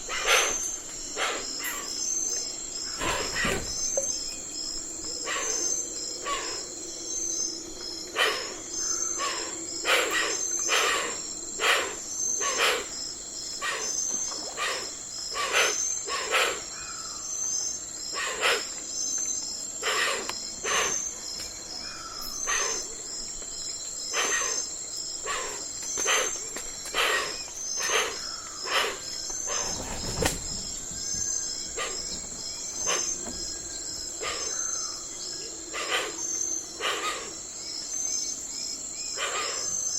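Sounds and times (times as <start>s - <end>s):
faint bird calls: 0.0s - 4.2s, 5.2s - 13.0s, 13.6s - 17.5s, 18.1s - 18.8s, 21.8s - 23.0s, 24.1s - 30.2s, 31.2s - 37.4s, 39.0s - 39.9s
insects trilling: 0.0s - 39.9s.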